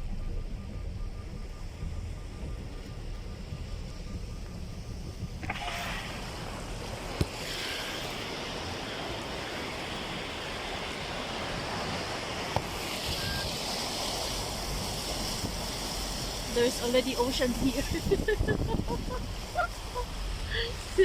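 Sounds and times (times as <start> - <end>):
car driving through floodwater: 0.0 - 21.0
heavy rain: 5.4 - 21.0.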